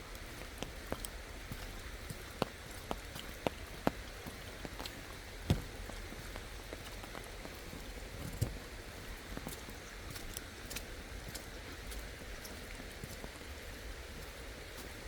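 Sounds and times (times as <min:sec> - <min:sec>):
raindrops tapping: 0:00.1 - 0:13.6.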